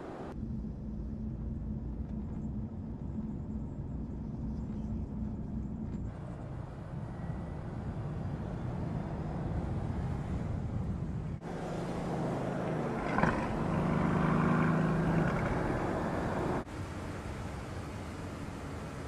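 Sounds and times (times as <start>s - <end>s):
car engine at speed: 6.1s - 19.0s.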